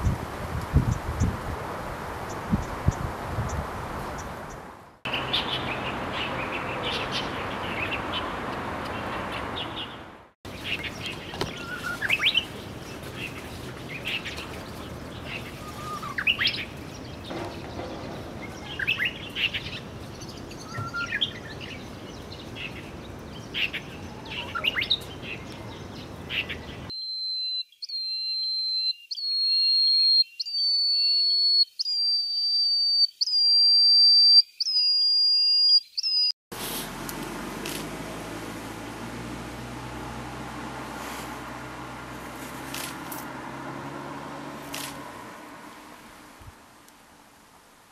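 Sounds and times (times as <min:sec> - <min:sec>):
songbirds chirping: 0:02.2 - 0:36.3
rising whistled bird notes: 0:11.5 - 0:12.4, 0:20.5 - 0:21.8, 0:26.9 - 0:36.3.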